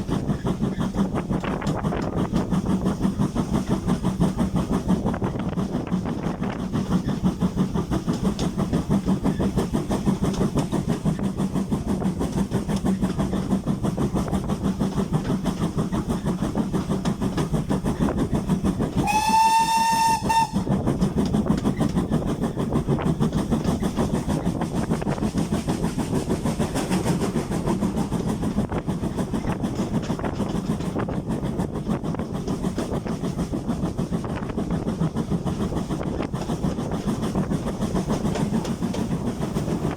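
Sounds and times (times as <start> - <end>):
steam locomotive clattering: 0.0 - 39.9
steam whistle: 19.0 - 20.7.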